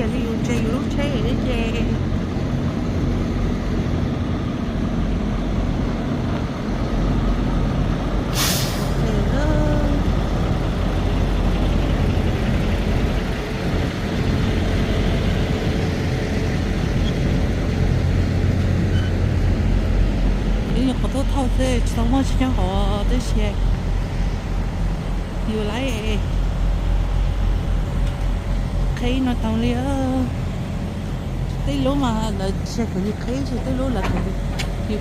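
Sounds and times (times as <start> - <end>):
truck engine running: 0.0 - 35.0
air brake hiss: 8.3 - 9.0.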